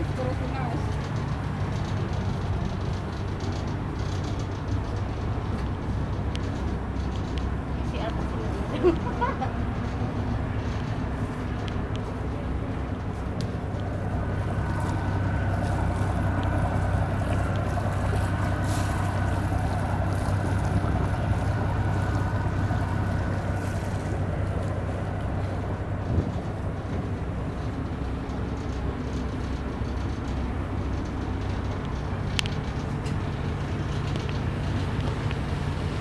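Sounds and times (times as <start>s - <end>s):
engine low drone: 0.0s - 36.0s
faint steady whine: 9.8s - 36.0s.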